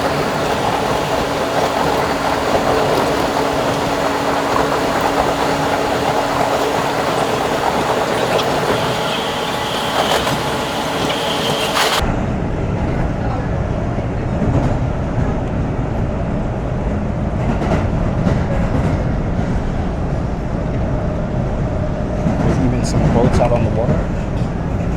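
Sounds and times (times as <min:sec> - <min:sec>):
high wheel squeal: 0:00.0 - 0:12.0
subway train wheels rumbling on rails: 0:00.0 - 0:24.9.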